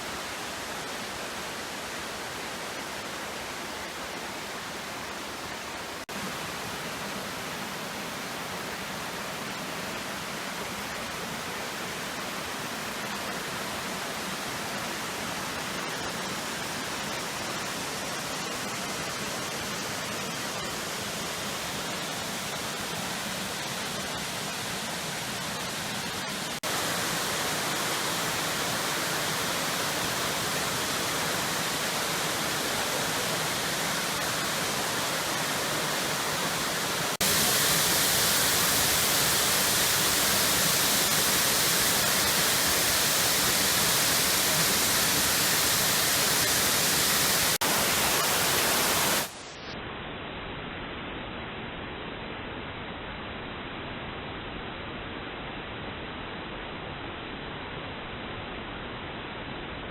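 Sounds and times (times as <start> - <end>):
waterfall rushing: 0.0 - 49.4.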